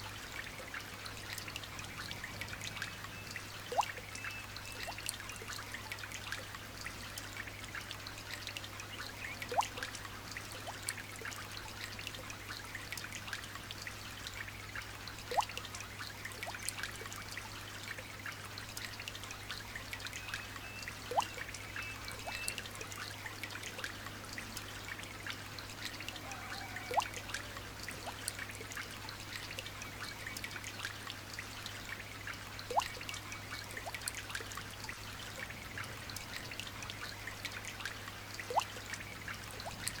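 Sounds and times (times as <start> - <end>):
single drip plinking: 20.7 - 22.7, 32.7 - 33.0.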